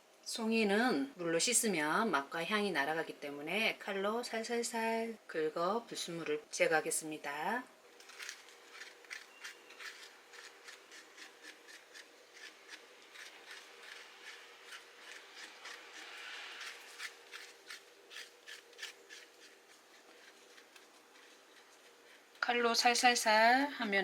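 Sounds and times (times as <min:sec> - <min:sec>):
knife scraping a mushroom: 0:08.0 - 0:22.3.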